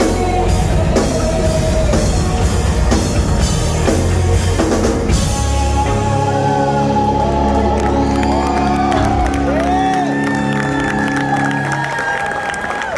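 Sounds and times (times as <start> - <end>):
deep bass: 0.0 - 12.4
crowd whooping and cheering: 6.3 - 12.9.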